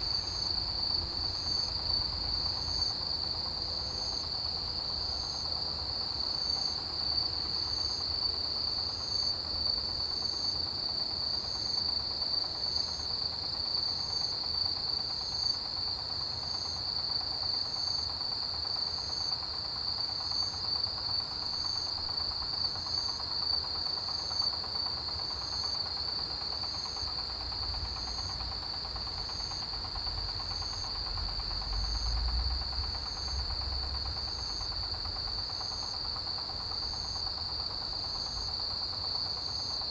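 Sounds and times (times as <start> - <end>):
insect chirping: 0.0 - 39.9
insect high pulsing: 14.4 - 39.9.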